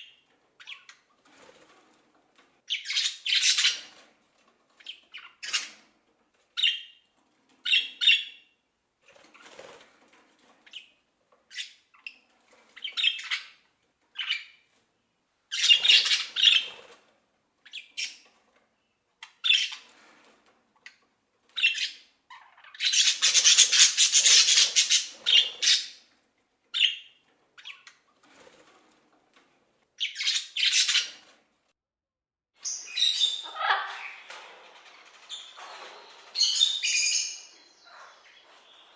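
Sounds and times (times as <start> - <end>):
parrots squawking: 2.7 - 3.9, 21.6 - 26.0, 32.6 - 34.3.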